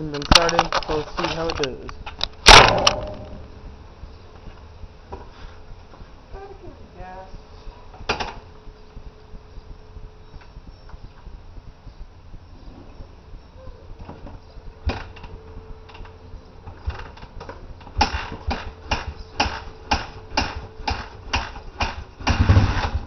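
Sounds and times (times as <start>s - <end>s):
motorcycle kick-starter kicks: 0.0s - 3.7s, 14.0s - 23.0s.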